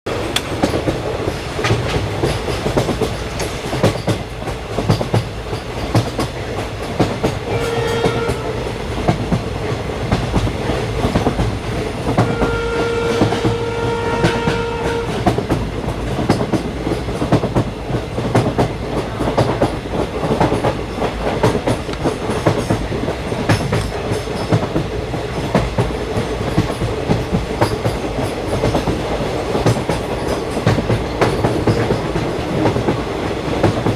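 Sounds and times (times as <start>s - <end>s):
train rumble: 0.1s - 33.9s
train wheels clicking over rail joints: 0.1s - 33.9s
train horn blasts: 7.4s - 8.7s, 12.1s - 15.4s.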